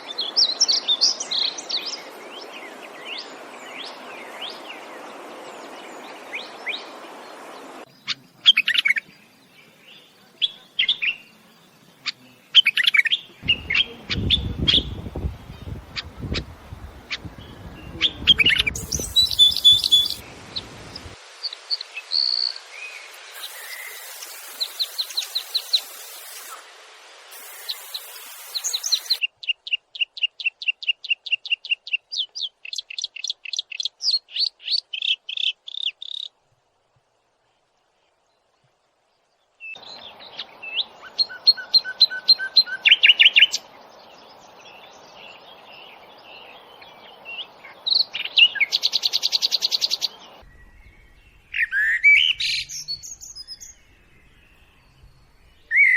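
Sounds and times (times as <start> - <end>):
songbirds chirping and singing: 0.0 - 26.5, 27.3 - 36.3, 39.6 - 55.9
bird quick repeated notes: 18.3 - 20.2.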